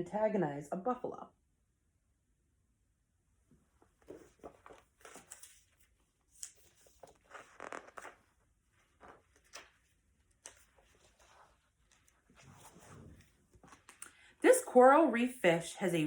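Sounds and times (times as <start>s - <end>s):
paper rustling: 3.8s - 14.3s.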